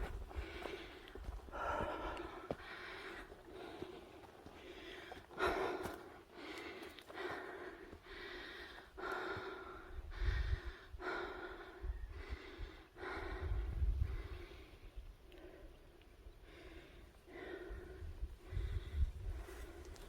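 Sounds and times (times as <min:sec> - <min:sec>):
heavy rhythmic breathing: 0:00.0 - 0:15.8.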